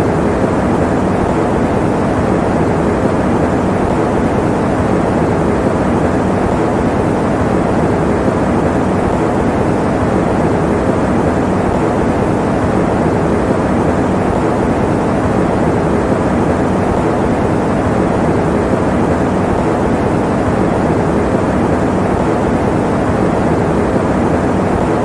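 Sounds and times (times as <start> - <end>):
electric fan running: 0.0 - 25.0.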